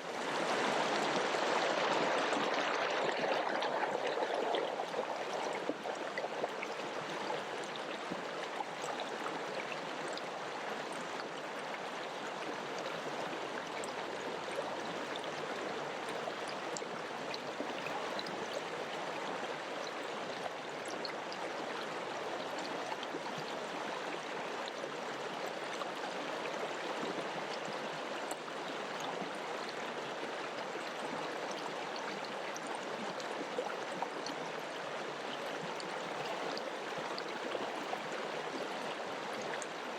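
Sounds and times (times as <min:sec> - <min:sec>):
river water rushing: 0:00.0 - 0:08.2
water splashes and gurgles: 0:00.0 - 0:39.9.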